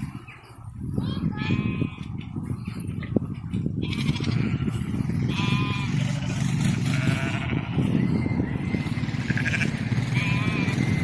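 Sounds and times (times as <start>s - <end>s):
sheep bleating: 3.8s - 7.8s, 9.3s - 10.9s.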